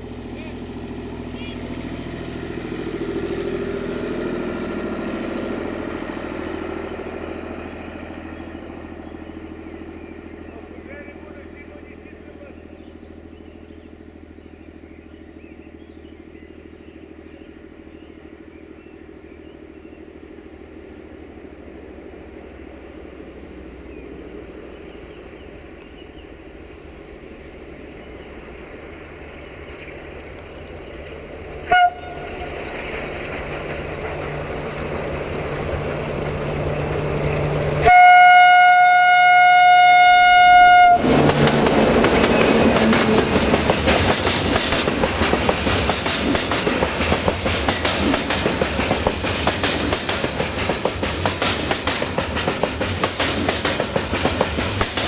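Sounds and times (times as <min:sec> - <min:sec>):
diesel locomotive engine: 0:00.0 - 0:55.0
wheels clacking over rail joints: 0:28.4 - 0:38.4, 0:40.7 - 0:55.0
locomotive horn: 0:31.6 - 0:32.6, 0:37.8 - 0:41.6.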